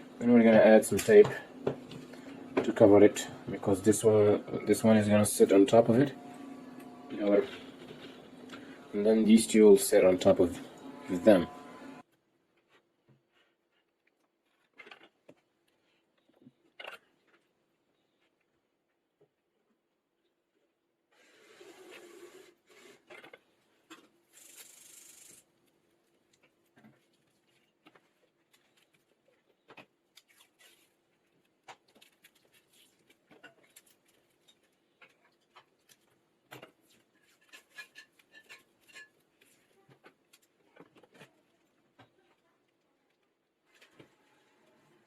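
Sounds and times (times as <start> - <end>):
small clicks and rubs: 22.7 - 42.4.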